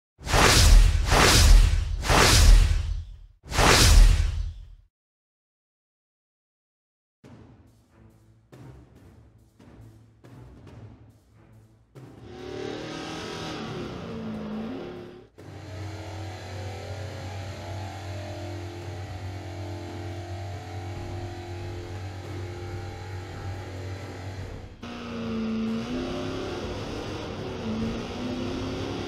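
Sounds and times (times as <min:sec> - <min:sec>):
race car engine revving: 0:12.2 - 0:29.0.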